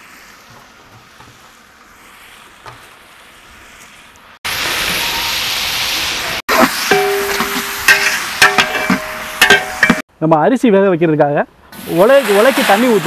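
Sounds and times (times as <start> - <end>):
vegetables sizzling in oil: 0.0 - 10.0
faint steady hiss: 0.0 - 13.0.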